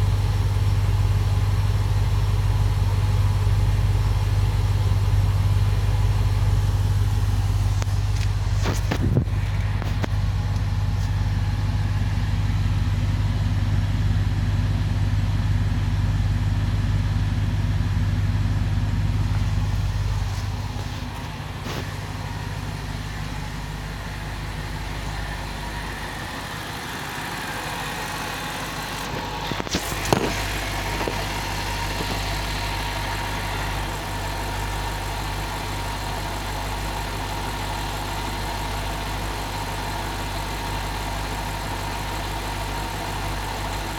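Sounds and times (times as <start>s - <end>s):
car engine idling: 0.0s - 43.9s.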